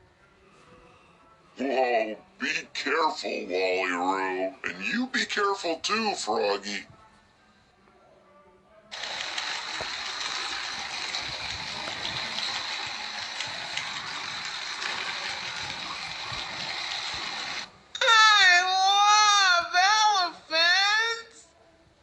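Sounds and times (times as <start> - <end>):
toy motor whirring: 8.9 - 17.7
toy train clicks: 8.9 - 17.7.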